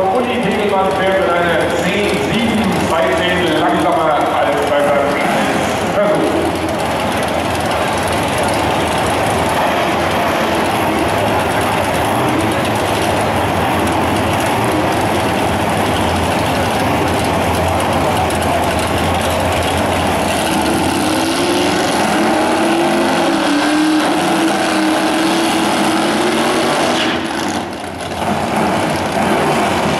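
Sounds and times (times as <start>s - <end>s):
car engine revving: 0.0s - 29.9s
racing car engines running: 0.0s - 29.9s.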